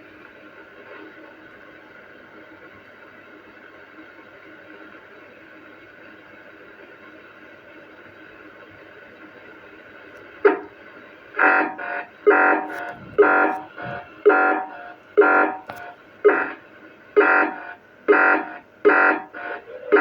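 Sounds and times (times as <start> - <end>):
radio hiss: 9.3 - 16.0, 18.8 - 20.0
buzzy pulsing radio interference: 12.6 - 14.1
radio click: 12.7 - 14.1, 15.3 - 16.0.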